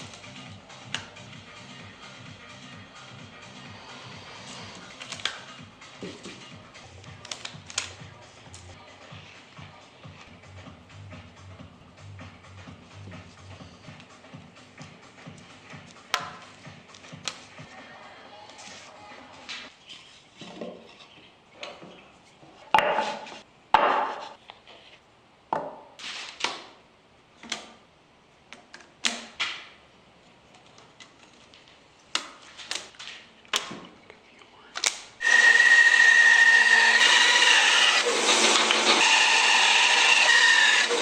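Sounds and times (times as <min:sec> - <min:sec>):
power tool whining: 0:35.2 - 0:41.0.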